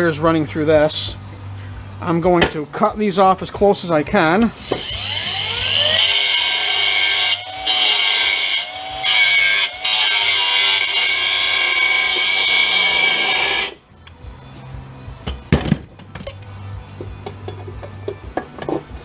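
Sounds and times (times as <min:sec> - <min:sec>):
power tool cutting wires: 0:04.6 - 0:13.8.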